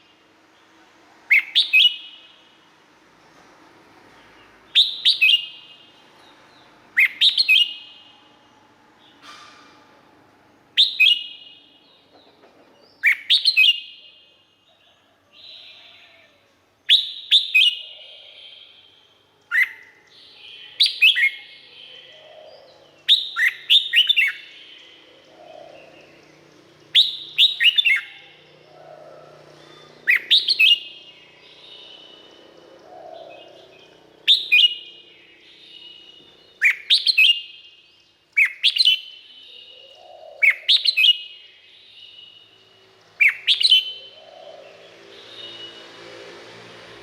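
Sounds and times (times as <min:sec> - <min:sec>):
bulbul singing whistled phrases: 0:01.3 - 0:02.4, 0:04.7 - 0:05.9, 0:07.0 - 0:08.3, 0:10.7 - 0:12.0, 0:16.9 - 0:46.0.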